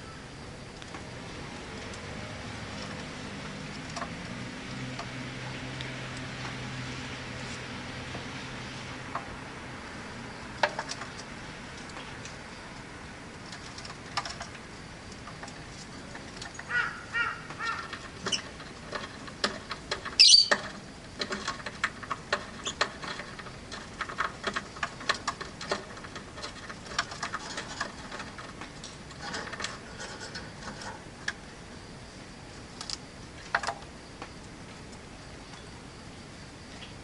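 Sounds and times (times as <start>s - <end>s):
harsh bird squawk: 16.7s - 17.9s, 20.2s - 20.5s
lovebirds chirping: 20.1s - 20.6s.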